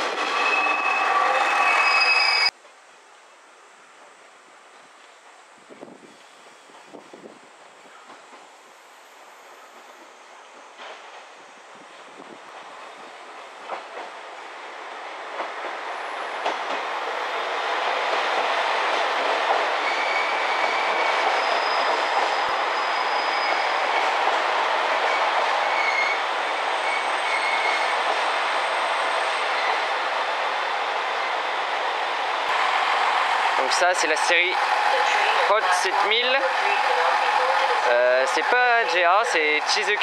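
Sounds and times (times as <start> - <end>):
train rolling past: 0.0 - 2.5, 3.8 - 40.0
thin high wheel squeals: 0.3 - 2.5, 19.8 - 23.9.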